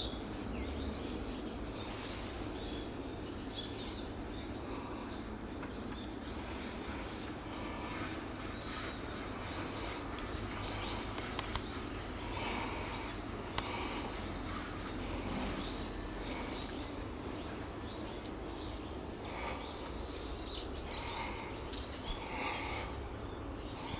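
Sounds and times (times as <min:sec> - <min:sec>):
songbirds chirping: 0:00.0 - 0:23.9
sharp clicks: 0:11.1 - 0:11.7.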